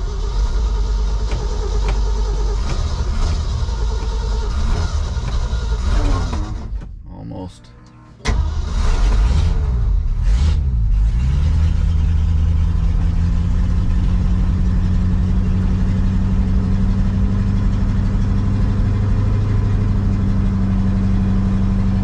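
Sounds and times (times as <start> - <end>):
truck engine fast idle: 0.0 - 6.8.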